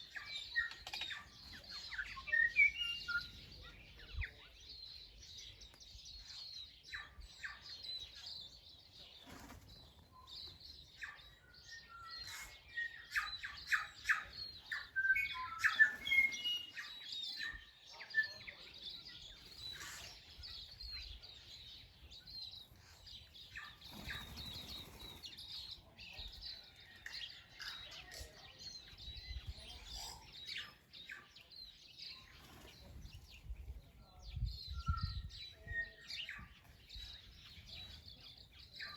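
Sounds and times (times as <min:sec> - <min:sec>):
small birds chirping: 0:00.0 - 0:38.9
bird singing rapid notes: 0:09.2 - 0:26.4.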